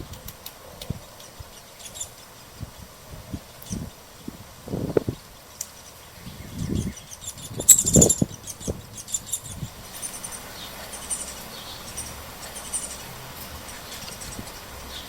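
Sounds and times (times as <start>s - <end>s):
young woodpecker begging chirps: 1.2s - 2.3s, 3.6s - 4.0s, 5.6s - 15.0s.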